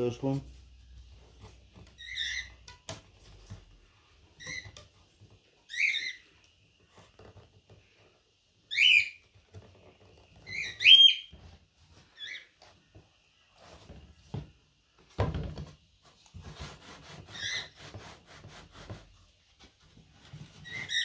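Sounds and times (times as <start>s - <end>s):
bird chirping: 5.6s - 6.4s, 8.7s - 9.2s, 10.4s - 11.3s.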